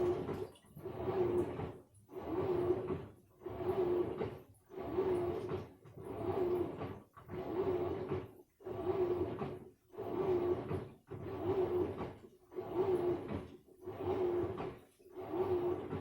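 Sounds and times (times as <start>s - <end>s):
washing machine swishing: 0.0s - 16.0s.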